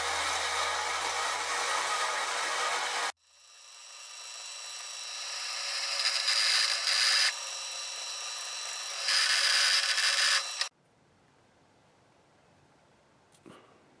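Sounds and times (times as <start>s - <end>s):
electric grinder whining: 0.0s - 10.7s.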